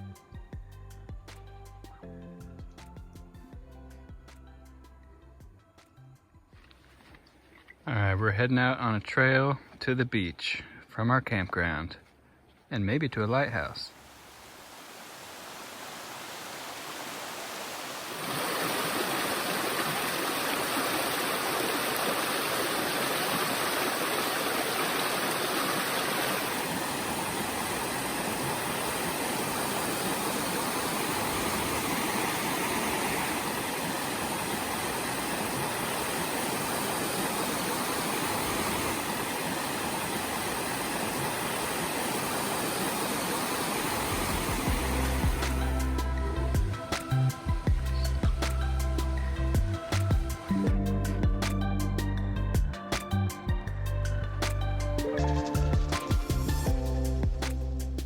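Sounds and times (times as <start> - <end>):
water rushing: 13.9 - 47.6.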